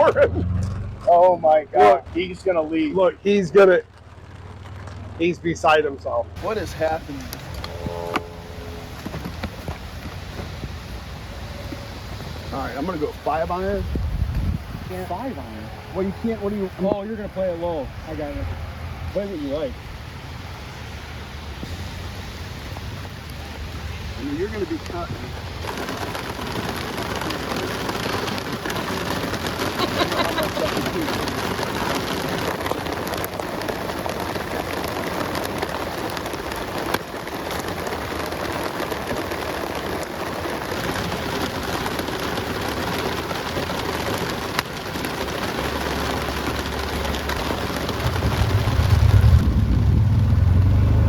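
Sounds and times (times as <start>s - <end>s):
heavy rain falling: 5.7s - 7.8s, 8.8s - 51.0s
low rumble: 5.9s - 15.0s, 43.9s - 51.0s.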